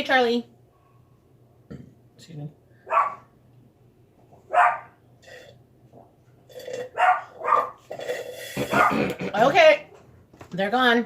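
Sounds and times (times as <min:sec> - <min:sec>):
dog barking: 0:02.9 - 0:03.3, 0:04.5 - 0:05.0, 0:06.9 - 0:07.8, 0:08.6 - 0:09.1.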